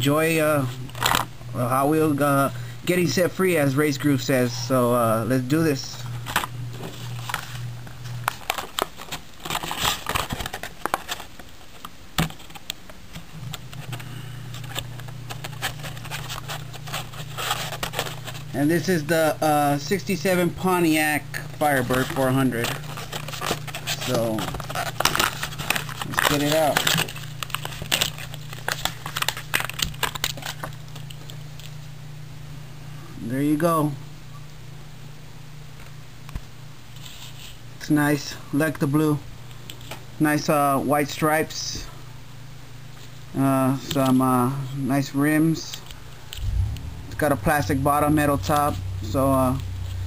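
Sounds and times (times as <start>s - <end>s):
low steady hum: 0.0s - 50.0s
plastic packaging crinkling: 6.2s - 12.7s, 13.5s - 18.6s, 21.3s - 31.7s.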